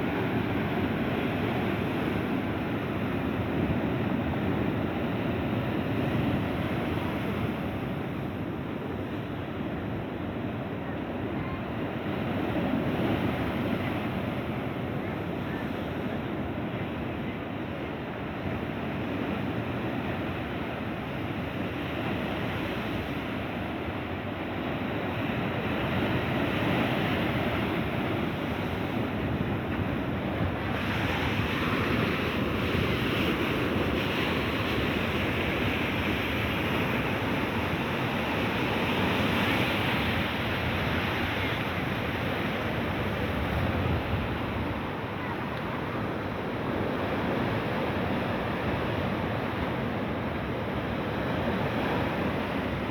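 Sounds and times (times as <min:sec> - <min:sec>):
sea waves breaking: 0:18.2 - 0:52.9
wind on microphone: 0:25.2 - 0:52.9.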